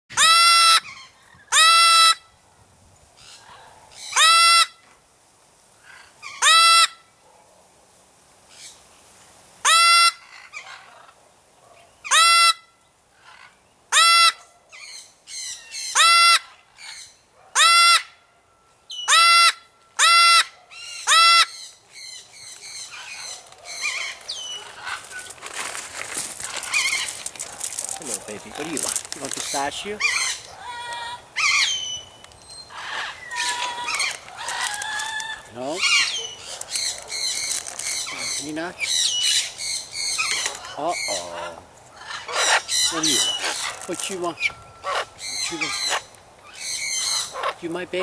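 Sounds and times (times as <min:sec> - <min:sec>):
parrot squawking: 0:00.1 - 0:02.2, 0:04.0 - 0:04.8, 0:05.9 - 0:07.0, 0:09.6 - 0:11.1, 0:12.0 - 0:18.2, 0:18.9 - 0:25.3, 0:26.7 - 0:27.2, 0:28.3 - 0:48.0.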